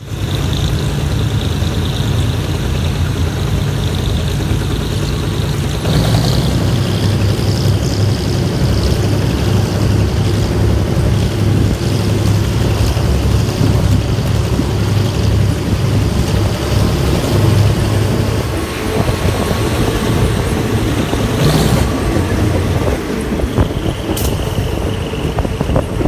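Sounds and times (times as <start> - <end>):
train engine drone: 0.0 - 26.0.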